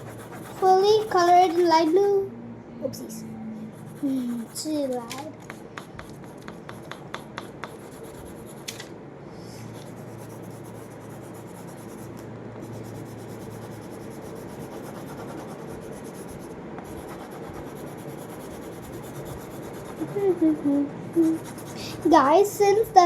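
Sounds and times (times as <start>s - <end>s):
colouring stick rubbing on paper: 0.0s - 2.0s, 3.7s - 4.8s, 9.8s - 22.2s.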